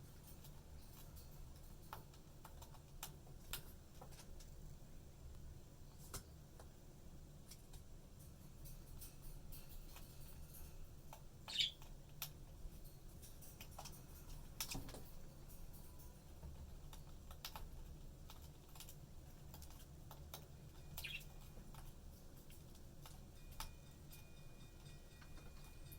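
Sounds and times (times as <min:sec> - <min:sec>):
budgie chirp: 0:11.5 - 0:11.8, 0:21.0 - 0:21.4.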